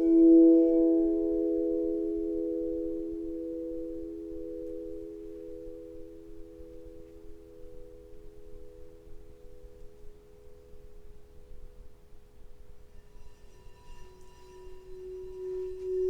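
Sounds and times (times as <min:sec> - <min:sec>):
singing bowl ringing: 0:12.9 - 0:16.0.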